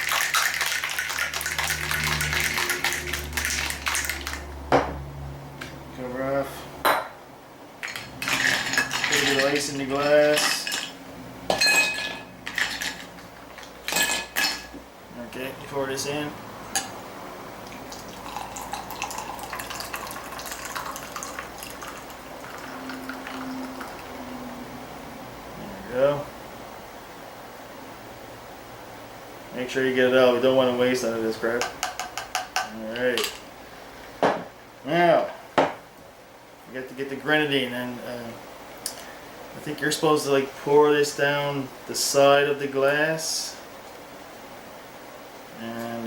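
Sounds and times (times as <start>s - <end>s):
ice rattling in cocktail shaker: 0.0s - 4.5s, 7.8s - 11.0s, 11.8s - 14.6s, 17.9s - 24.0s
liquid pouring into a glass: 0.0s - 4.5s, 17.6s - 24.2s.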